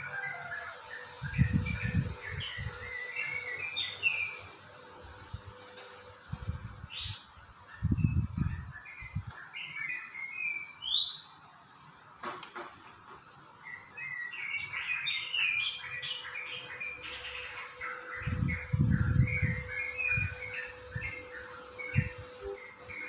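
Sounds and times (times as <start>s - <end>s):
small birds chirping: 0.0s - 23.0s
rising whistles: 16.4s - 23.0s.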